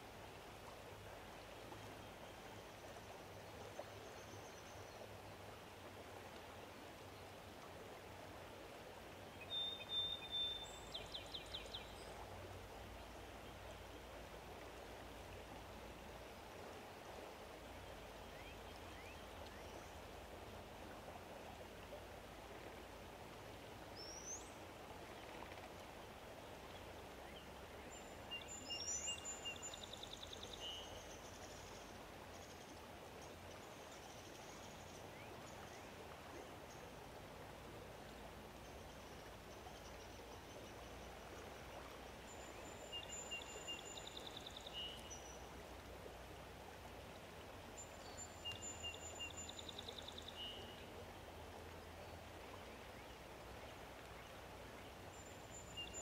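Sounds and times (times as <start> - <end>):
songbird singing: 9.3 - 14.1, 17.8 - 20.2, 24.0 - 25.9, 26.6 - 37.0, 38.6 - 45.6, 47.7 - 51.0, 51.6 - 56.0.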